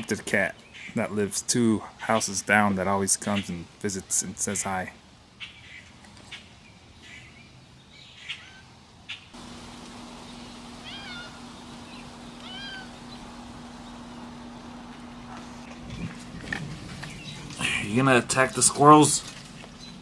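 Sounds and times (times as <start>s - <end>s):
steady low hum: 9.4s - 20.0s
cat meowing: 10.8s - 11.4s, 12.4s - 12.9s.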